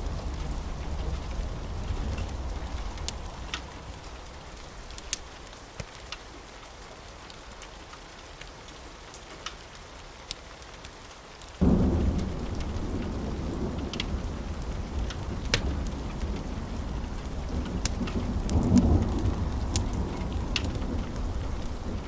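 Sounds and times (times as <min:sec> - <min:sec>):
thunder rumbling: 0:00.0 - 0:05.3, 0:11.6 - 0:22.0
sharp crackles: 0:00.0 - 0:06.2, 0:09.4 - 0:22.0
steady rain: 0:00.0 - 0:22.0.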